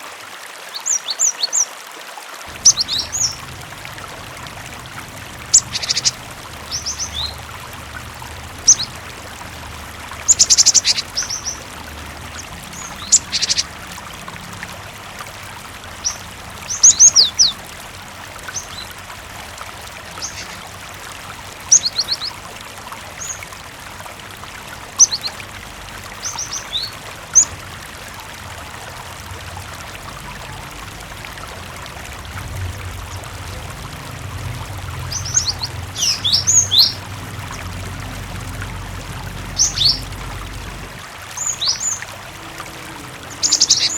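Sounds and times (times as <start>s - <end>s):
running water: 0.0s - 43.9s
bird chirping: 2.5s - 4.2s, 5.2s - 9.0s, 10.2s - 13.8s, 35.0s - 37.1s, 39.5s - 40.2s, 41.4s - 43.9s.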